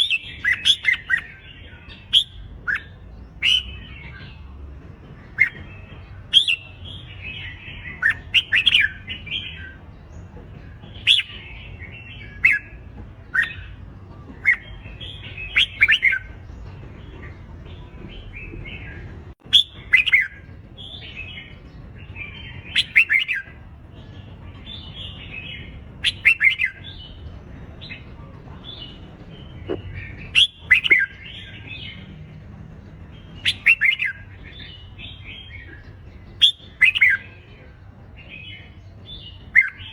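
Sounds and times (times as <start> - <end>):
bulbuls warbling song: 0.0 - 39.9.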